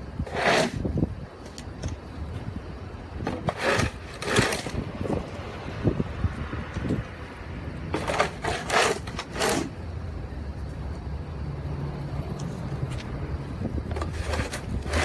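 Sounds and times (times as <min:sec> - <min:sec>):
snow shovel scraping snow: 0:00.2 - 0:00.9, 0:03.2 - 0:04.9, 0:07.9 - 0:09.8, 0:13.9 - 0:15.0.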